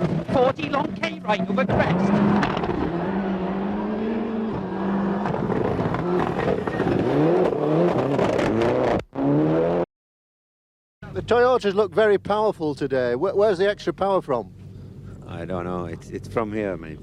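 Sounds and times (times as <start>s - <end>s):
rally car engine revving: 0.0s - 9.8s.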